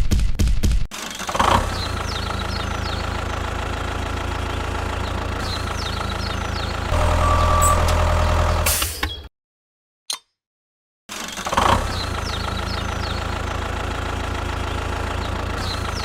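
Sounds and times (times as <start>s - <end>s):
tractor engine idling: 1.2s - 8.8s, 12.0s - 16.0s
short chirps: 6.9s - 9.1s.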